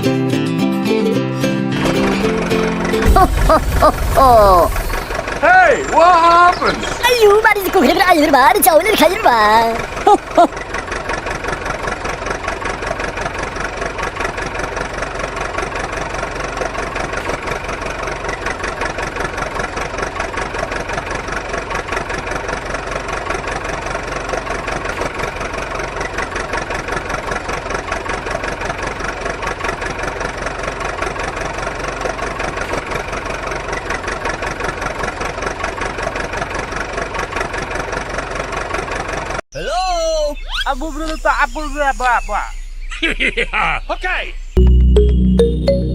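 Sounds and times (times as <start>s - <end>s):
engine idling: 1.8s - 39.4s.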